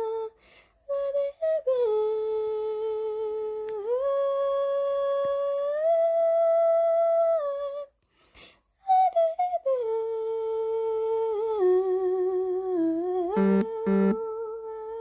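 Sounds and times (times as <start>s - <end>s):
person humming: 13.4s - 14.2s.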